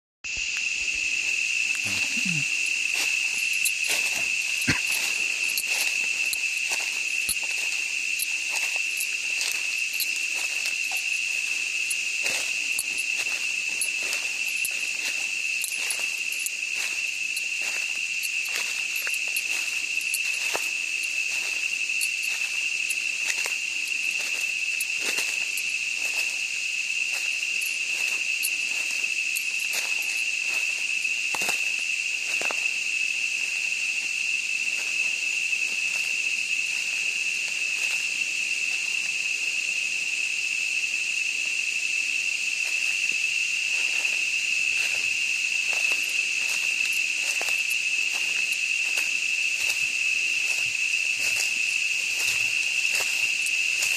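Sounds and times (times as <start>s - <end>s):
shrill insect chorus: 0.3s - 53.9s
footsteps crunching leaf litter: 1.9s - 32.6s, 43.7s - 53.9s.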